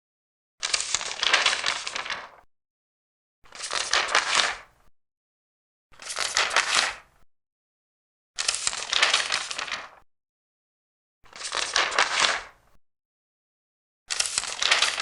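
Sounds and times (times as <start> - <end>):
paper pages turning: 0.6 - 2.4, 3.5 - 4.7, 6.0 - 7.0, 8.4 - 10.0, 11.3 - 12.6, 14.1 - 15.0.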